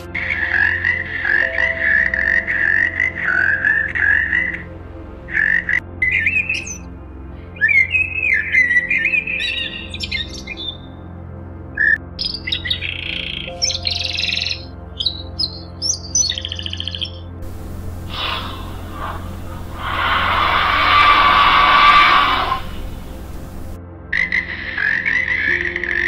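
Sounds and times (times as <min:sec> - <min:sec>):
bird trill: 0:05.3 - 0:06.8, 0:07.6 - 0:10.9, 0:11.8 - 0:23.8
low hum: 0:17.4 - 0:23.8.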